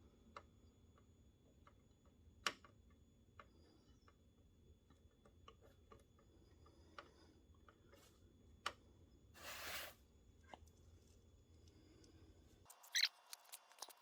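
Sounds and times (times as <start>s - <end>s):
short hissing rustle: 9.4s - 10.0s.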